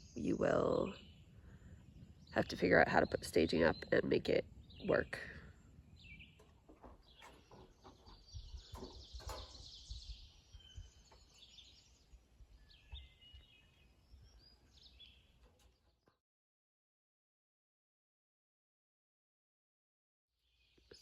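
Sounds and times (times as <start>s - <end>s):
faint birds chirping: 0.0s - 16.2s, 20.4s - 21.0s.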